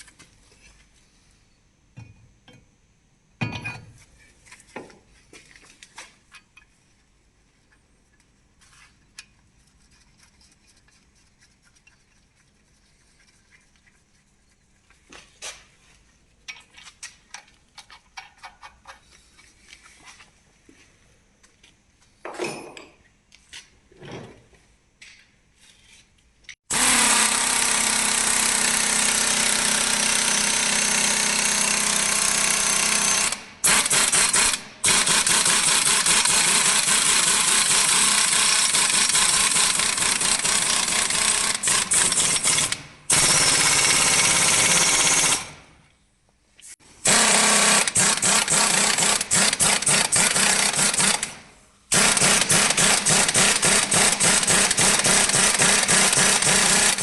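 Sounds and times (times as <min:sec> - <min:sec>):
power tool running: 0:26.7 - 0:45.6, 0:47.0 - 0:57.0.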